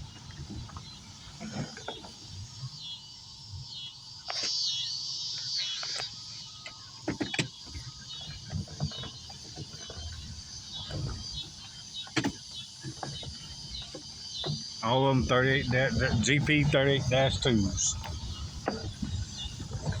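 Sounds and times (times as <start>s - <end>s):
insects chirring: 0.0s - 20.0s
sharp clicks and knocks: 5.9s - 20.0s.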